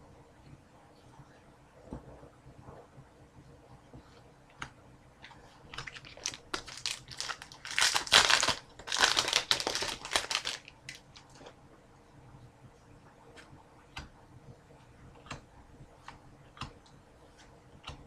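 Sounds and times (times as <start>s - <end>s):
foil wrapper crinkling: 5.7s - 11.4s.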